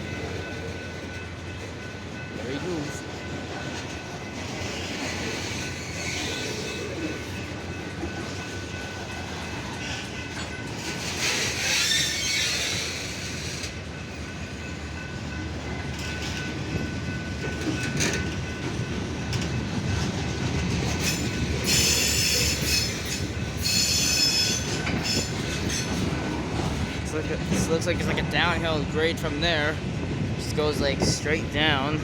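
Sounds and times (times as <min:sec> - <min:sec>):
freight train wheels rumbling: 0:00.0 - 0:32.0
train wheels squealing: 0:04.3 - 0:15.2, 0:20.7 - 0:26.9.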